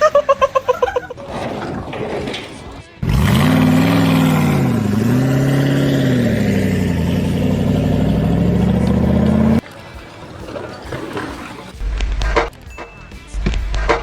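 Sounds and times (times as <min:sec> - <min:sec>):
engine revving under load: 0:01.2 - 0:09.6.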